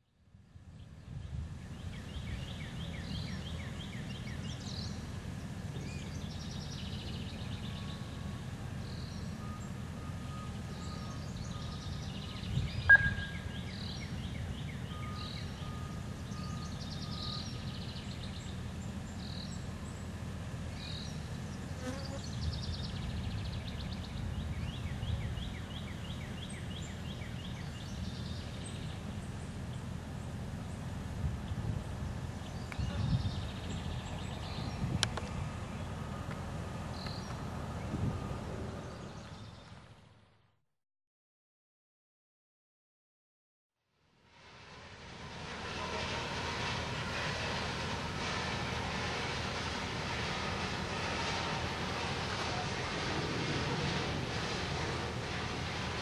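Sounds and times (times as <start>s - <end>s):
birds chirping and trilling: 10.6s - 20.0s
steady low rumble: 11.9s - 14.8s, 44.2s - 56.0s.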